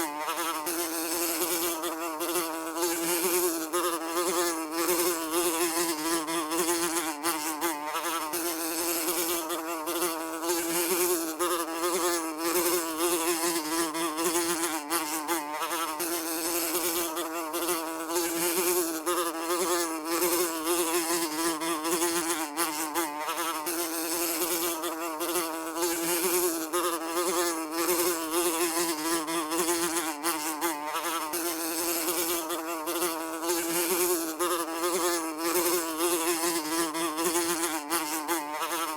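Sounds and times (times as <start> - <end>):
housefly buzzing: 0.0 - 38.9.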